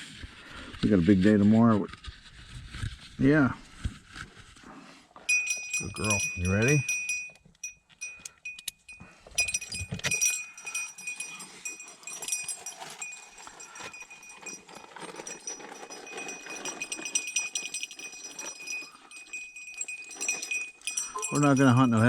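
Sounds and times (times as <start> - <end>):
dog collar bell jingling: 5.3 - 22.0
rustling through brush: 9.1 - 22.0.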